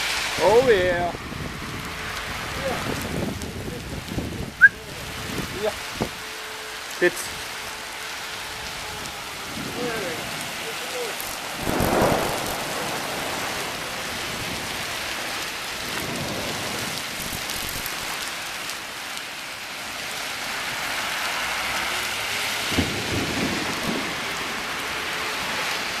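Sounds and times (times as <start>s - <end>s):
heavy rain drumming: 0.0s - 26.0s
low rumble: 11.4s - 14.8s.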